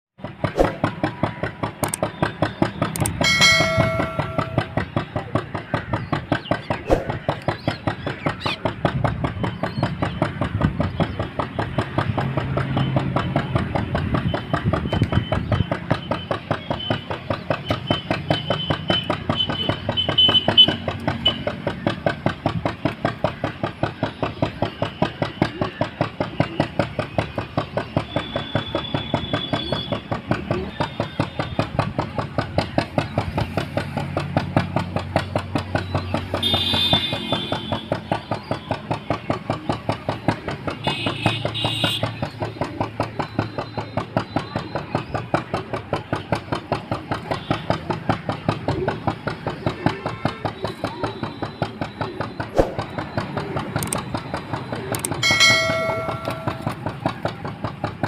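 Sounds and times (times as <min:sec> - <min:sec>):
engine idling with chugging beat: 0:00.2 - 0:58.0
brief pitched tone: 0:03.2 - 0:04.8, 0:55.2 - 0:56.7.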